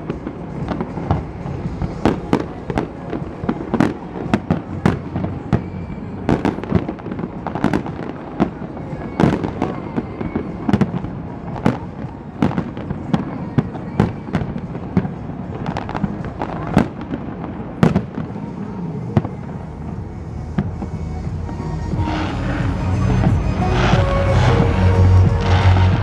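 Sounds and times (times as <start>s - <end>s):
fireworks bursting: 0.0s - 26.0s.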